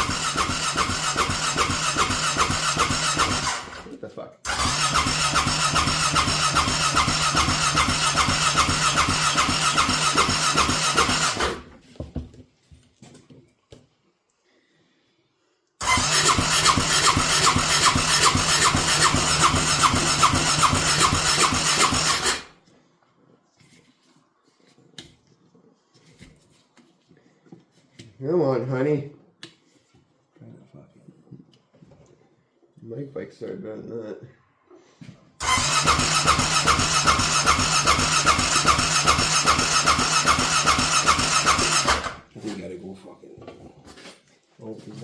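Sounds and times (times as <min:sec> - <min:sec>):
starter cranking engine: 0:00.0 - 0:11.7, 0:15.8 - 0:22.6, 0:35.4 - 0:42.3.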